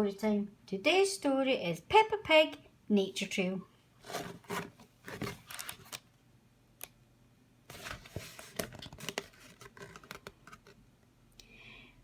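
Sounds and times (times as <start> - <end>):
book pages rustling: 4.0 - 6.1, 7.7 - 10.8.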